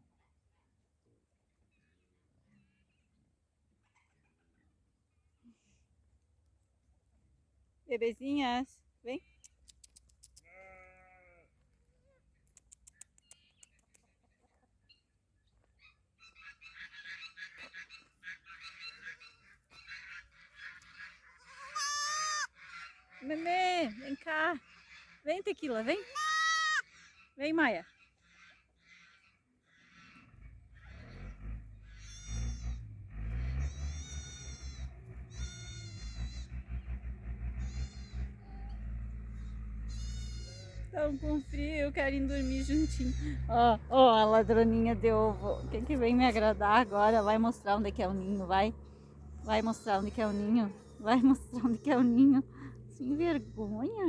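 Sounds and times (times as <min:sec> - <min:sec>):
sheep bleating: 0:10.4 - 0:11.5, 0:21.3 - 0:22.6, 0:26.0 - 0:26.8, 0:32.0 - 0:32.8, 0:33.7 - 0:36.5, 0:37.6 - 0:38.3, 0:39.3 - 0:41.5
high-pitched farm bird calls: 0:12.4 - 0:32.9, 0:33.5 - 0:54.0
young animals crying: 0:16.4 - 0:27.3, 0:28.2 - 0:32.9, 0:33.6 - 0:36.8, 0:37.5 - 0:54.0.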